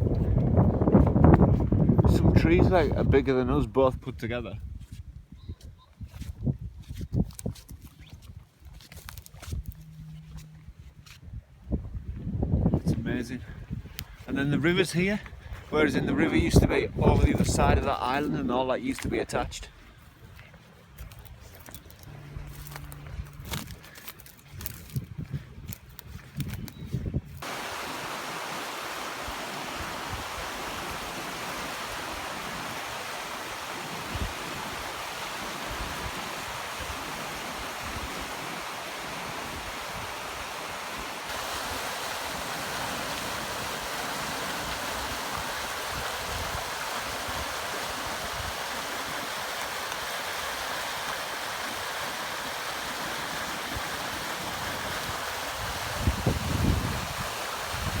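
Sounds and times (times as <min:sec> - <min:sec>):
river flowing: 0:27.4 - 0:58.0.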